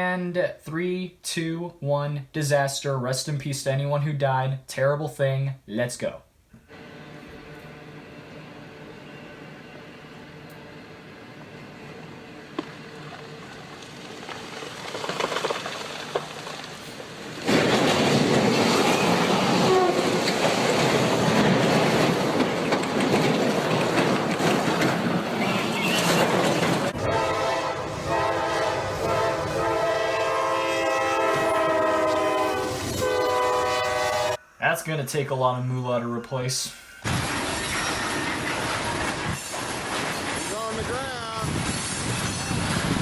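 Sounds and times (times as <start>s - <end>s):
moving train noise: 6.6s - 43.0s
train horn chord: 6.7s - 11.0s, 19.6s - 20.2s, 27.0s - 34.5s.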